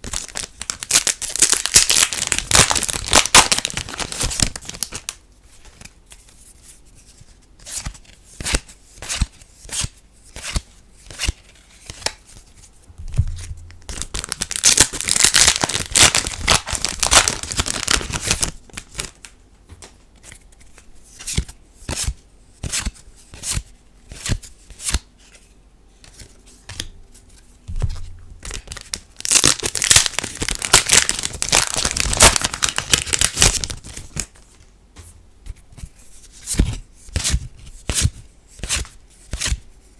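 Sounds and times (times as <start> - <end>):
foil wrappers crinkling and tearing: 0.0 - 5.2, 13.7 - 19.2, 28.4 - 34.3.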